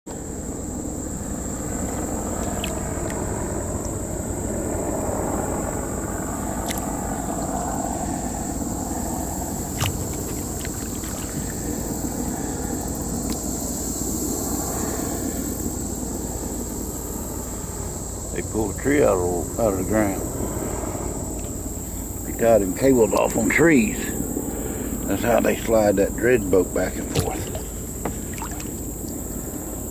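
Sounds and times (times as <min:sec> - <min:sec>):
boat engine droning: 0:00.1 - 0:29.9
high insect whine: 0:00.1 - 0:29.9
sharp knocks: 0:27.1 - 0:28.7.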